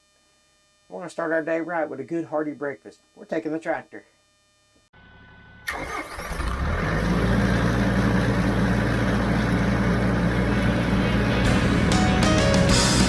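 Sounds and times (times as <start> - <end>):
tractor diesel engine running: 5.0 - 13.0.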